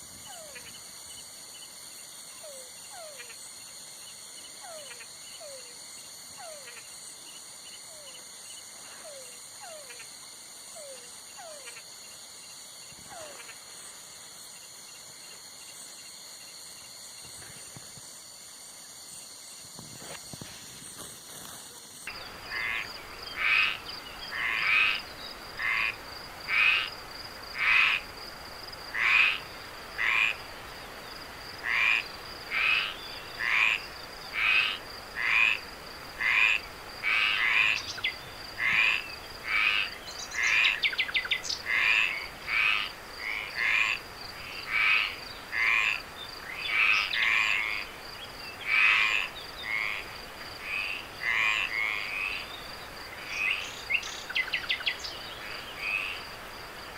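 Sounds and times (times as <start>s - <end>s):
night insects droning: 0.0s - 56.9s
frog calling: 2.3s - 3.5s, 4.6s - 7.0s, 10.7s - 11.9s, 13.0s - 13.7s, 22.1s - 28.1s, 28.9s - 30.5s, 31.6s - 56.3s.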